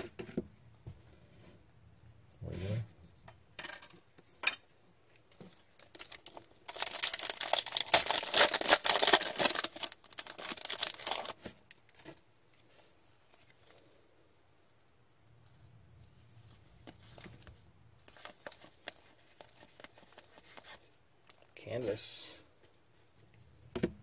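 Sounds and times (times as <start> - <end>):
foil wrapper tearing and crinkling: 5.8 - 12.1.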